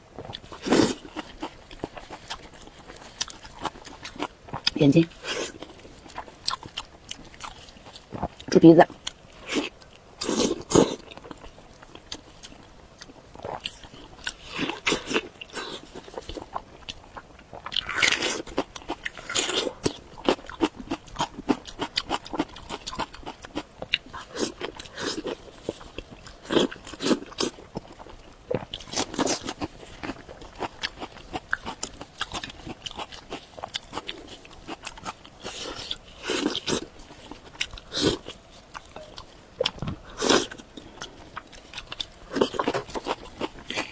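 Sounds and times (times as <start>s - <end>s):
crunchy chewing: 0.1s - 43.9s.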